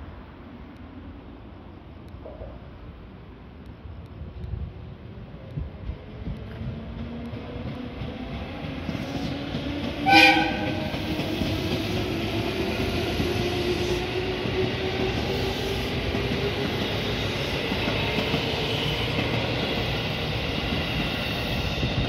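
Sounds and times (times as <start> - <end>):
train wheels rumbling on rail: 0.1 - 22.0
train horn blast: 10.0 - 11.0.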